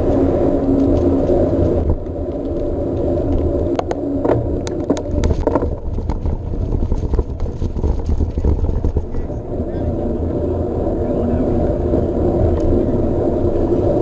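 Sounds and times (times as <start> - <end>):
bike clicks and rattles: 0.0 - 10.5
wind and tyre rumble: 0.0 - 14.0.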